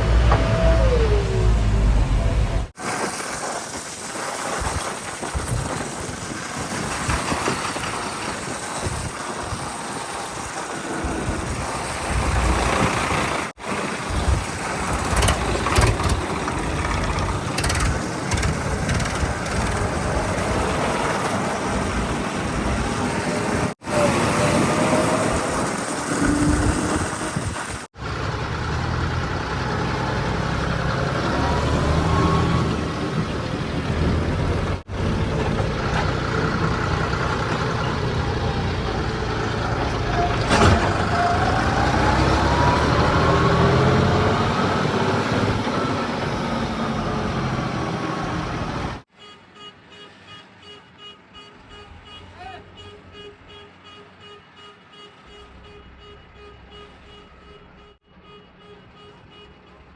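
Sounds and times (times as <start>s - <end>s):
diesel engines idling: 0.0s - 2.8s, 12.1s - 44.8s.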